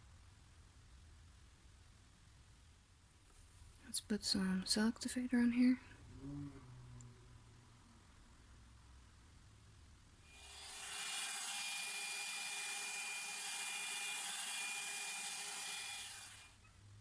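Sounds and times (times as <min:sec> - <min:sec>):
electric air blower whirring: 0:10.3 - 0:16.6.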